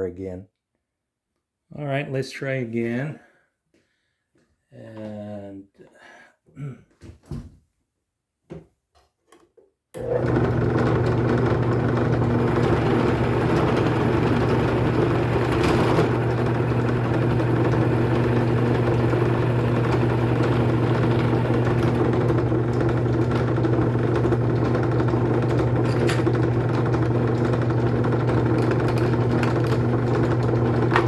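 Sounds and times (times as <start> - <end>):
drill press humming: 10.0 - 31.0.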